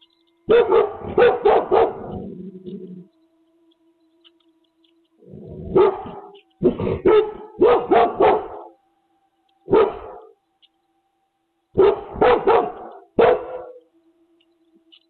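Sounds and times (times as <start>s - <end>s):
dog barking: 0.5s - 2.3s, 5.7s - 8.8s, 9.7s - 10.3s, 11.8s - 13.9s.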